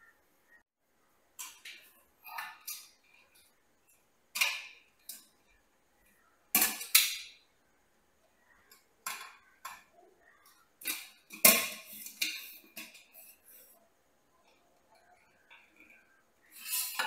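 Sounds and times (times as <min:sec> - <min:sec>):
dishes and utensils clattering: 0:04.3 - 0:05.4, 0:06.5 - 0:07.4, 0:08.7 - 0:13.8, 0:14.8 - 0:17.0.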